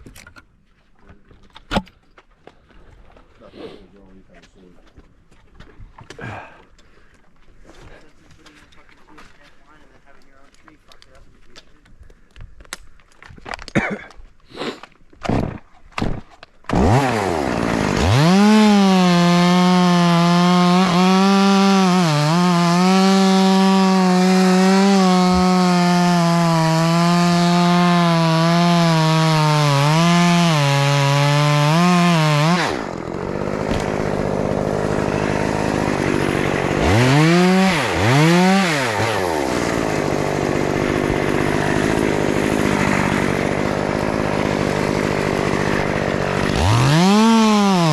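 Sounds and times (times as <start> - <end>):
chainsaw engine revving: 16.7 - 47.9.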